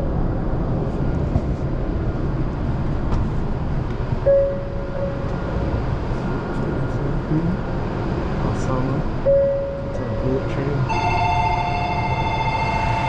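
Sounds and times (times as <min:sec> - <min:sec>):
train running rumble: 0:00.0 - 0:13.0
short tone: 0:04.3 - 0:05.5, 0:09.2 - 0:13.0.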